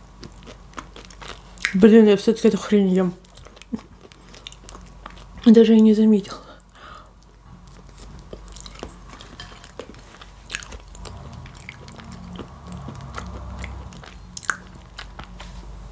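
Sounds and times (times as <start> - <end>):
person chewing food: 0.0 - 1.8, 3.2 - 5.4, 6.6 - 15.9
mouth clicks and smacks: 1.2 - 1.9.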